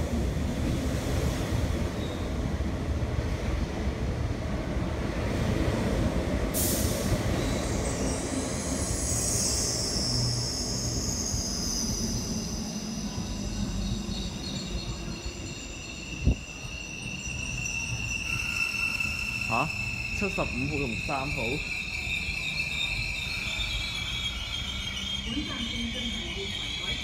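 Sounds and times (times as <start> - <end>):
train wheels rumbling on rails: 0.0 - 27.0
high-pitched multi-tone squeal: 6.6 - 27.0.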